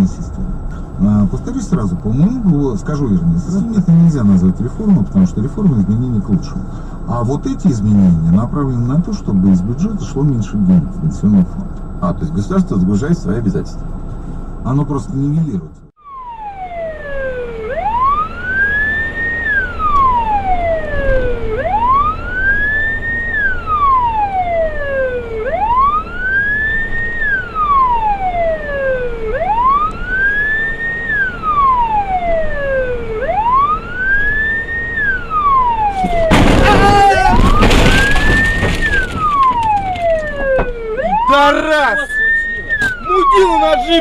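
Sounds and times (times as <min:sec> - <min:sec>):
emergency siren wailing: 0:16.0 - 0:44.0
second fainter siren wail: 0:16.0 - 0:44.0.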